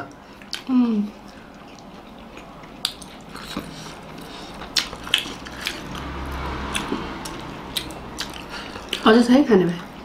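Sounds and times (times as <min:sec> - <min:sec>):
wet chewing clicks and smacks: 0:00.1 - 0:09.8.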